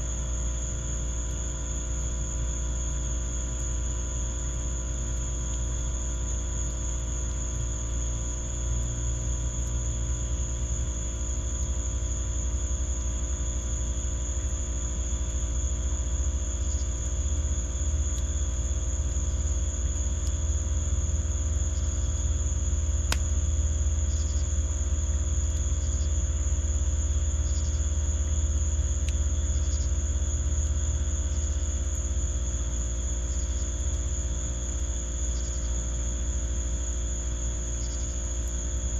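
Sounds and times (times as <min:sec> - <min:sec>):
crickets trilling: 0:00.0 - 0:38.9
wood fire popping: 0:14.5 - 0:26.1, 0:28.8 - 0:29.9.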